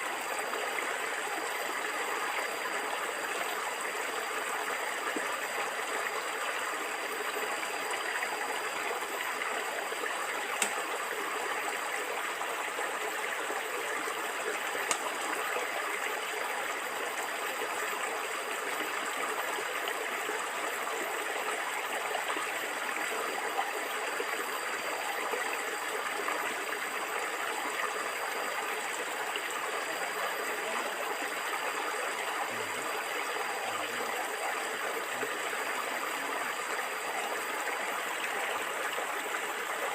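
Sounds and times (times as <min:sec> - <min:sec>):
stream water gurgling: 0:00.0 - 0:39.9
faint clicks: 0:10.6 - 0:10.9, 0:14.8 - 0:15.3.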